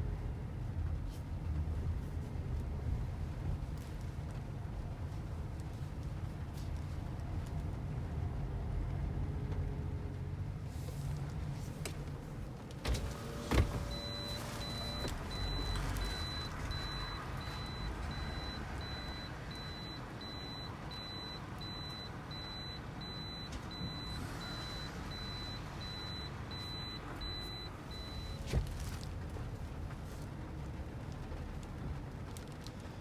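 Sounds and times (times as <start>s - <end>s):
car warning beeper: 13.5s - 28.5s.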